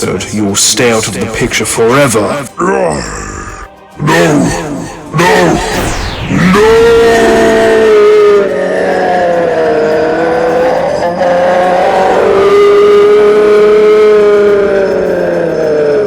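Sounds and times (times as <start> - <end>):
loud wavering screeching: 4.3 - 16.0.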